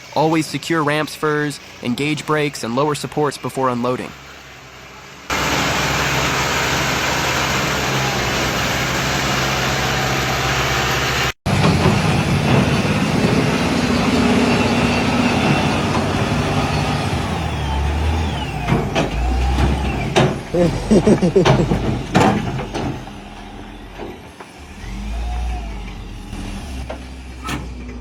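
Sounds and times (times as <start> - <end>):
heavy vehicle engine running: 0.0 - 28.0.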